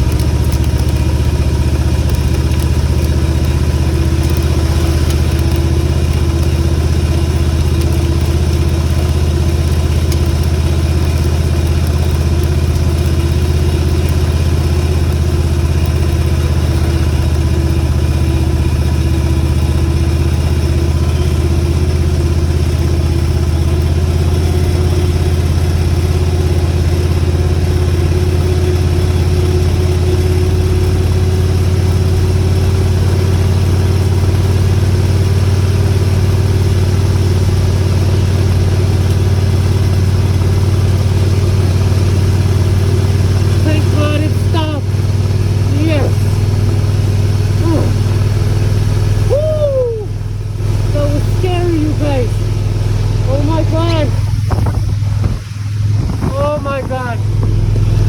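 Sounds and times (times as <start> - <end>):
motorcycle engine running: 0.0 - 58.0
wind and road noise: 35.6 - 58.0.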